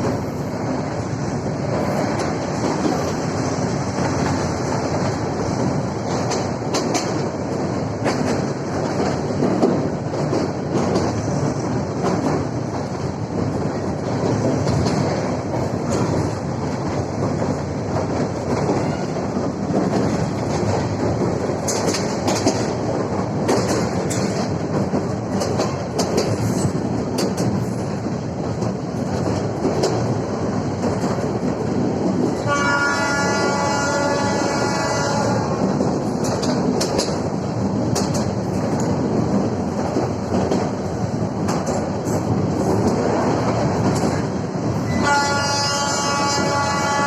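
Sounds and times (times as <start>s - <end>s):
train rumbling on rails: 0.0s - 47.0s
wheels clicking over rail joints: 0.0s - 47.0s
train horn: 32.4s - 35.6s, 44.9s - 47.0s.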